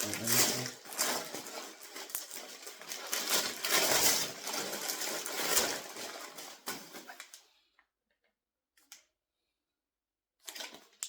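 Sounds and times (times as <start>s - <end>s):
gift packaging crinkling: 0.0s - 7.4s, 10.4s - 11.0s.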